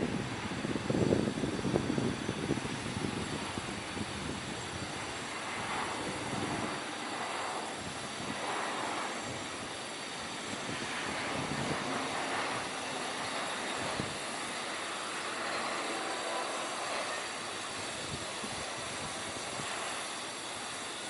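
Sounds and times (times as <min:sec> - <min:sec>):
jet engines rushing: 0:00.0 - 0:21.0.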